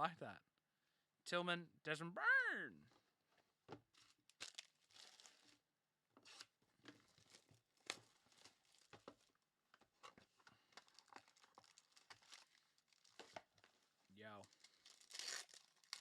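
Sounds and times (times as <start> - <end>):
foil wrapper tearing and crinkling: 4.0 - 5.6, 10.8 - 13.4, 14.4 - 16.0.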